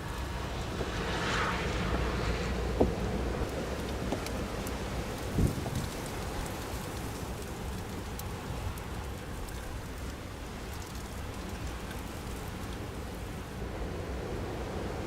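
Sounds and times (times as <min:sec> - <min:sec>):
blizzard wind hiss: 0:00.0 - 0:15.0
snow ticking: 0:03.4 - 0:13.6.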